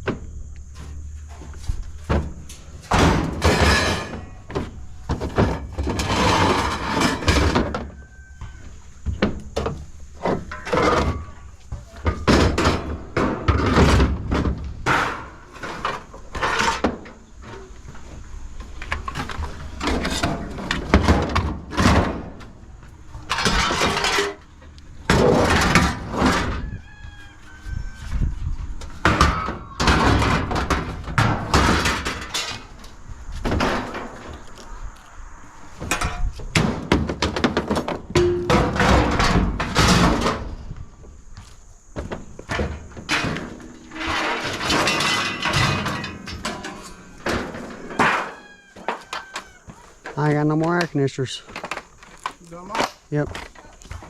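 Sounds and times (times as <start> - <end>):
scrap metal clanking into truck bed: 0.8 - 8.0, 10.1 - 17.8, 18.9 - 22.6, 23.2 - 26.8, 29.0 - 34.4, 35.8 - 40.7, 42.5 - 50.2.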